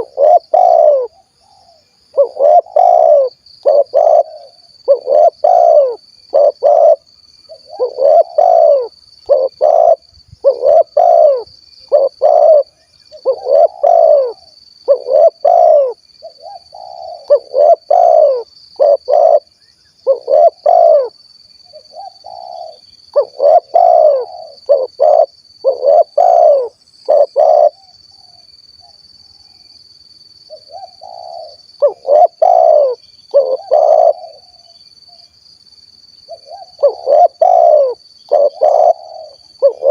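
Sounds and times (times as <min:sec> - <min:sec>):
dove cooing: 0:00.0 - 0:28.4, 0:30.5 - 0:34.7, 0:36.3 - 0:39.9.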